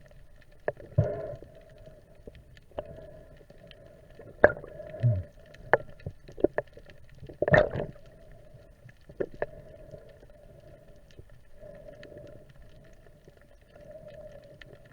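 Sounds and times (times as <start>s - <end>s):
faint steady hum: 0.0s - 14.9s
underwater clicks and knocks: 4.4s - 8.1s.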